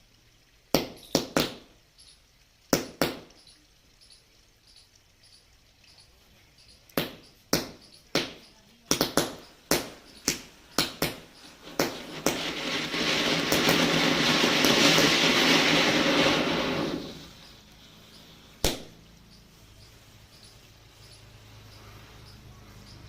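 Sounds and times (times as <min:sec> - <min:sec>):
matchstick heads popping: 0:07.6 - 0:17.3
firework hissing: 0:09.0 - 0:23.0.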